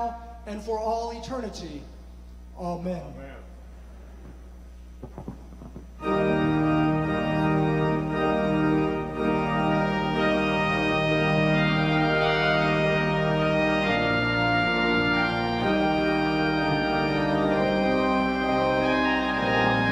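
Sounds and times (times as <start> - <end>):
soft knocks: 5.0 - 6.0
church organ chords: 5.2 - 19.9.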